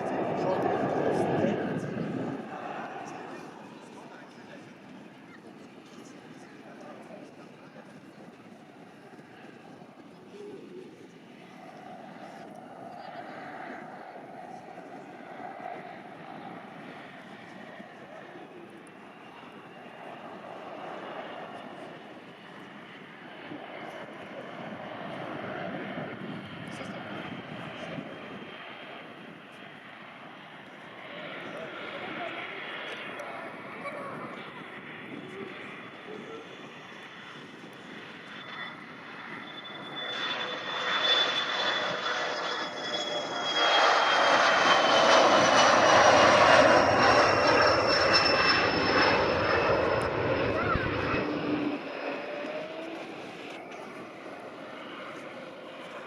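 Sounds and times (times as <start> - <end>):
jet engines rushing: 0.0 - 56.0
high engine whine: 37.4 - 56.0.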